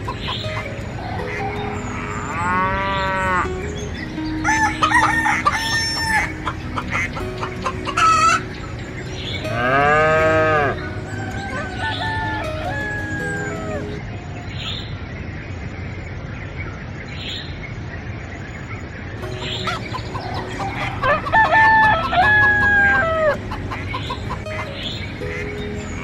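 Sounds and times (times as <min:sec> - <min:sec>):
chicken clucking: 0:00.0 - 0:02.1, 0:04.5 - 0:08.7, 0:19.4 - 0:26.0
rooster crowing: 0:04.4 - 0:06.3, 0:10.0 - 0:14.0, 0:20.7 - 0:23.4.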